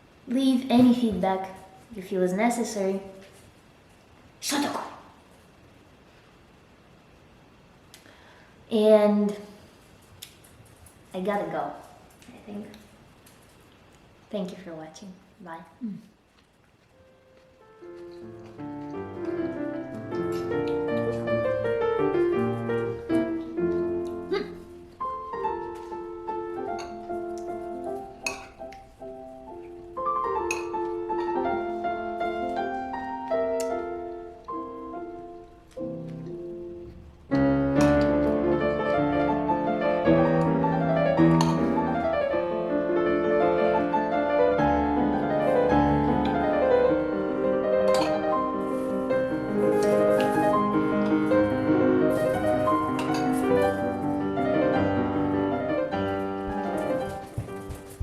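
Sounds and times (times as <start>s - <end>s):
piano music: 17.0s - 58.0s.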